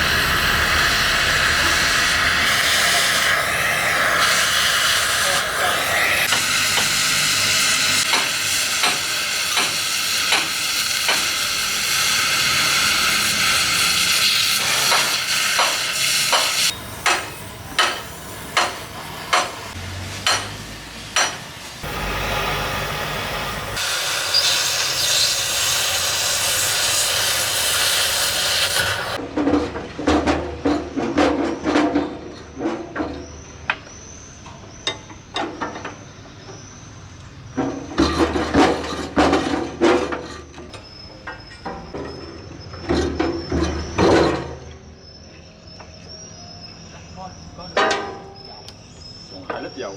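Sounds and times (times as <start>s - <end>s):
gas cutting torch hissing: 0.0s - 29.2s
sharp knocks on metal: 14.9s - 19.6s, 20.2s - 20.6s.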